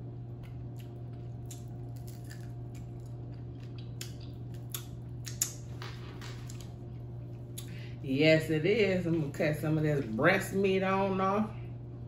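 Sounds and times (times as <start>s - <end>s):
steady low hum: 0.0s - 12.0s
chewing and lip-smacking: 0.3s - 5.8s.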